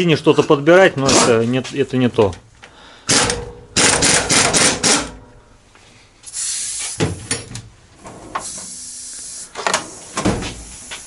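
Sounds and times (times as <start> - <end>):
steady hiss: 6.2 - 7.5, 8.2 - 11.0.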